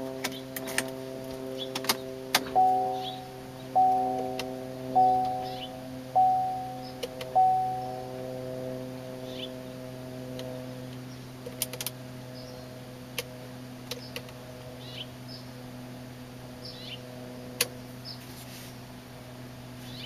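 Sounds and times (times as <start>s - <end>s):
low mechanical hum: 0.0s - 20.0s
small birds chirping: 1.5s - 8.1s, 9.2s - 9.8s, 10.4s - 11.4s, 12.2s - 12.8s, 13.4s - 15.7s, 16.6s - 17.1s, 17.7s - 18.4s, 19.8s - 20.0s.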